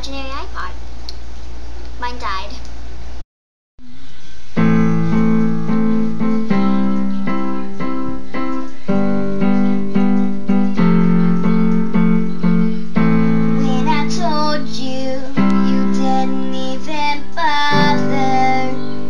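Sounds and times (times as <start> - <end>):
piano block chords: 4.5 - 19.0.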